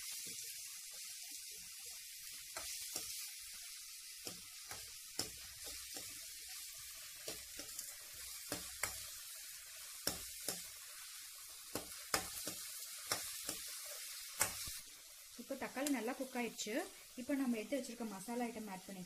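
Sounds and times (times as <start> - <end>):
onions and tomatoes sizzling in oil: 0.0 - 19.0
spatula knocking and scraping pan: 4.2 - 9.2, 10.0 - 10.7, 11.7 - 13.8.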